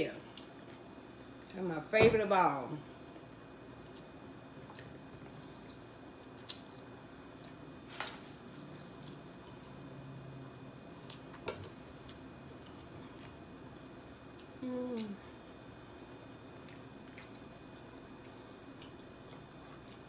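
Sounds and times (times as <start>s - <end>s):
faint room hum: 0.0s - 20.0s.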